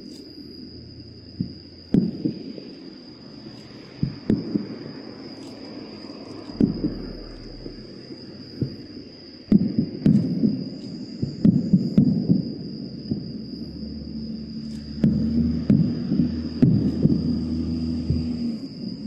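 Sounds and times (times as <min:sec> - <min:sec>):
firework booms: 0:01.4 - 0:02.6, 0:04.0 - 0:04.9, 0:06.5 - 0:13.3, 0:15.0 - 0:17.3.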